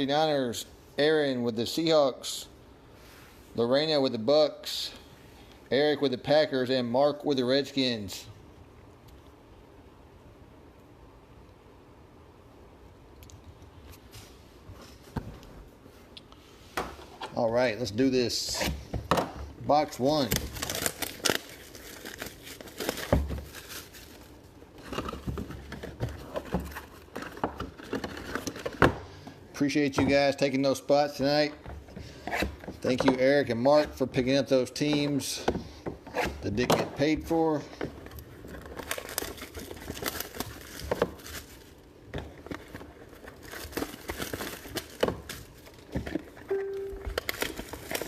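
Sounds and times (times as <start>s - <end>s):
plastic wrap crinkling and tearing: 19.8s - 28.8s, 38.0s - 46.4s, 47.0s - 48.0s.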